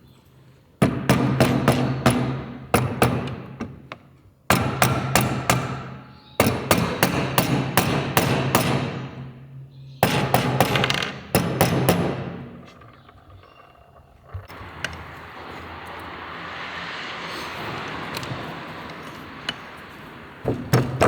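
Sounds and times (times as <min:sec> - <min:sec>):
hammer tapping on engine parts: 0:00.8 - 0:09.4, 0:10.0 - 0:12.8, 0:20.5 - 0:21.0.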